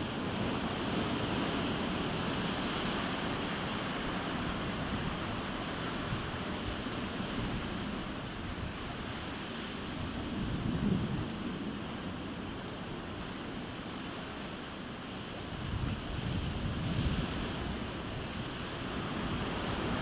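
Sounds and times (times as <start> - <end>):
strong wind gusting: 9.8 - 11.9, 15.4 - 20.0.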